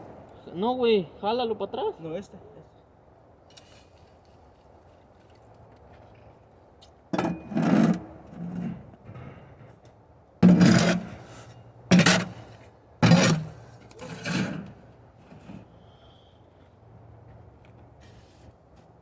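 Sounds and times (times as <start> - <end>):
metal shovel scraping ash: 7.2 - 8.9, 10.4 - 15.7.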